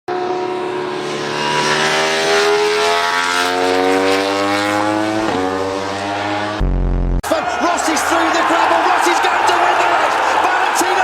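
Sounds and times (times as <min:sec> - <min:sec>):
racing motorcycle engine accelerating: 0:00.1 - 0:07.2.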